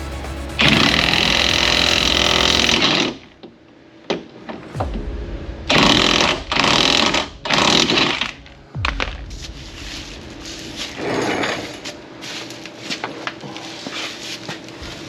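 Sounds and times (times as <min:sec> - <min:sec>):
impact wrench bursts: 0:00.6 - 0:03.2.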